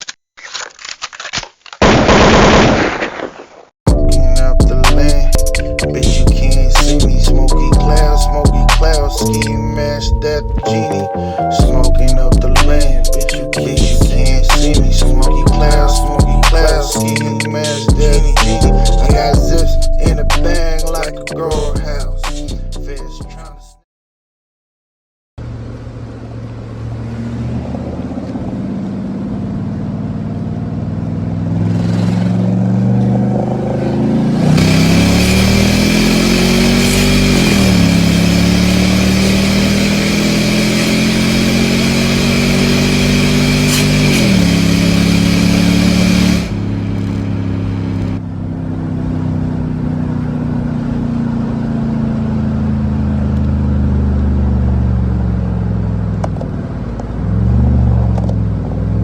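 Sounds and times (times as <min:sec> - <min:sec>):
car engine accelerating hard: 0:25.4 - 0:59.0.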